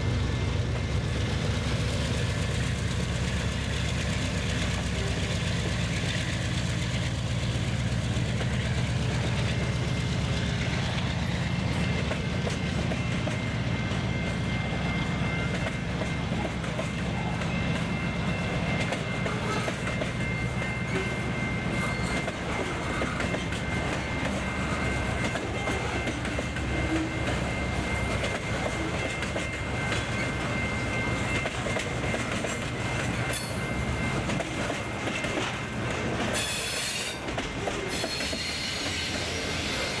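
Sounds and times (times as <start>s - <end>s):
train wheels clattering on rails: 0.0s - 40.0s
thin high squeal: 36.4s - 37.2s, 37.8s - 40.0s.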